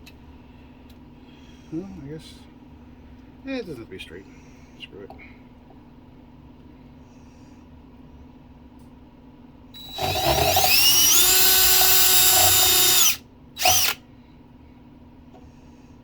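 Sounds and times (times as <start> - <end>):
power drill whining: 9.8 - 14.0.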